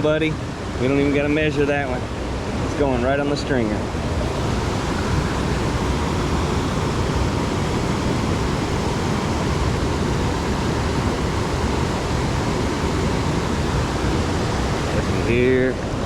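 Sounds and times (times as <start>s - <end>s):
fast-moving water rushing: 3.8s - 16.0s.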